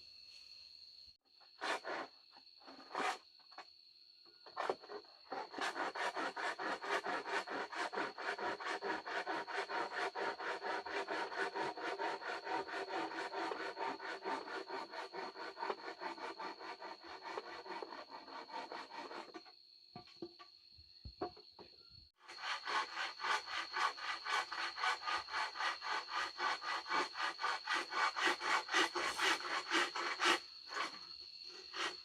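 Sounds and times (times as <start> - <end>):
hand saw cutting wood: 1.6 - 2.1, 4.6 - 19.5, 22.2 - 32.0.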